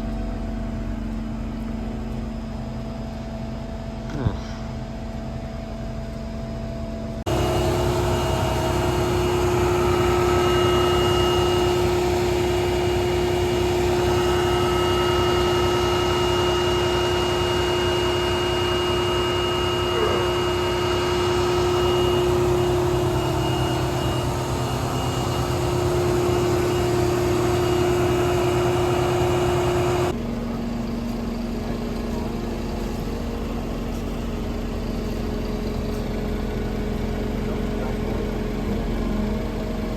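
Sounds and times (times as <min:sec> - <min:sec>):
large engine humming: 0:00.0 - 0:39.9
thin high whine: 0:07.3 - 0:36.8.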